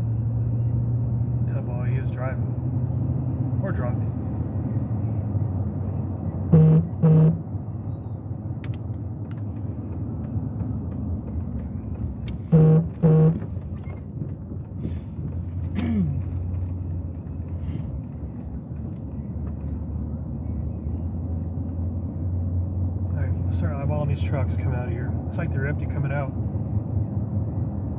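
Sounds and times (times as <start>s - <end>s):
vehicle engine low rumble: 0.0s - 27.9s
vehicle horn beeps: 6.5s - 7.5s, 12.4s - 13.4s.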